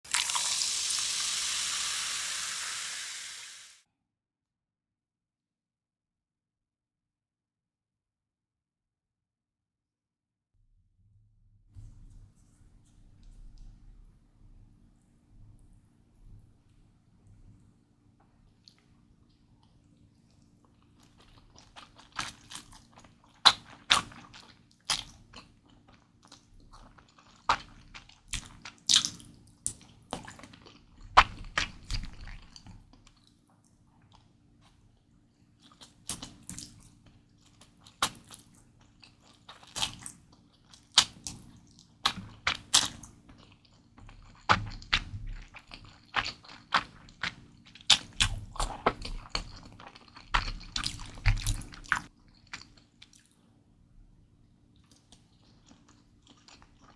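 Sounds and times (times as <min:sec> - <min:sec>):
wet chewing of noodles: 0:19.6 - 0:33.4, 0:34.0 - 0:34.8, 0:35.5 - 0:53.5, 0:54.8 - 0:56.9.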